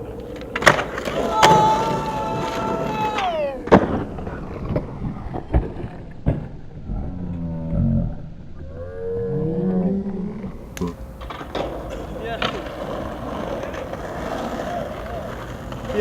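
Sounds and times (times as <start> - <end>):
skateboard clacks: 0.0 - 6.7, 10.6 - 16.0
skateboard slide screeching: 0.0 - 16.0
wordless shouts and hollers: 1.1 - 3.7.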